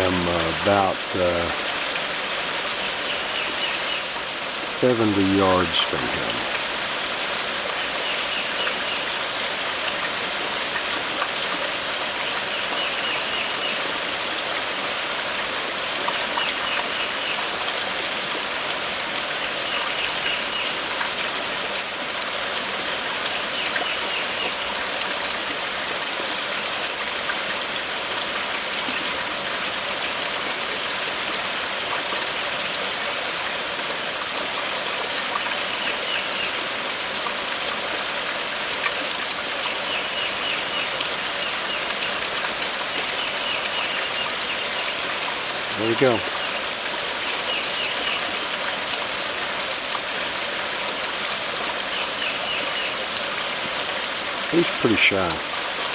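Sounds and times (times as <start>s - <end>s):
steady rain falling: 0.0s - 55.9s
faint short high call: 2.7s - 6.6s.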